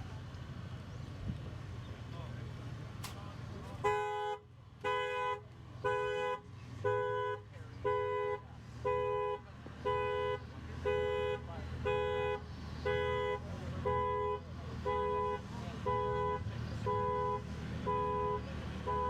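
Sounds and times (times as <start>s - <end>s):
car alarm horn blasts: 3.8s - 19.0s.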